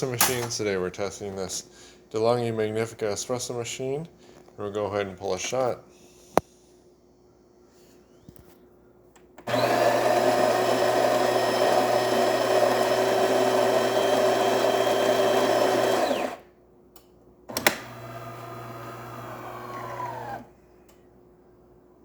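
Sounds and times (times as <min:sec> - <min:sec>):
coffee machine humming: 0:09.4 - 0:16.4, 0:17.5 - 0:20.5
coffee grinder whirring: 0:09.5 - 0:16.4, 0:17.6 - 0:20.5.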